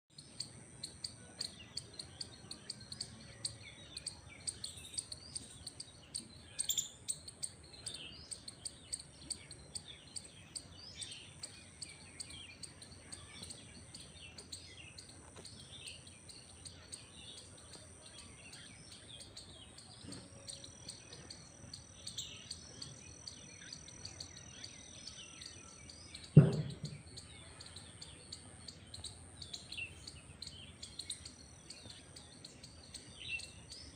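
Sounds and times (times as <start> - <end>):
birds chirping: 0.1 - 33.9
loud thump: 26.3 - 27.1.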